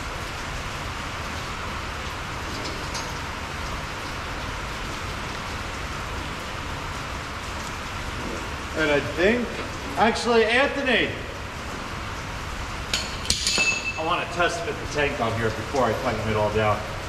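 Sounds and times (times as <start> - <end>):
rain on a shed roof: 0.0 - 17.0.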